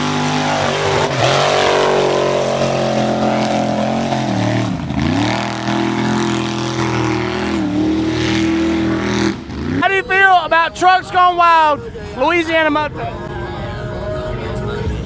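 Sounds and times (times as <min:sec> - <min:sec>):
truck engine revving: 0:00.0 - 0:10.8.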